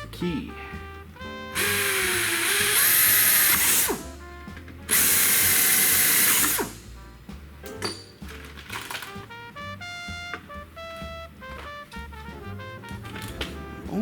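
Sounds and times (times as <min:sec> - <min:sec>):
power drill drilling sheet metal: 0:01.6 - 0:04.2, 0:04.9 - 0:06.9.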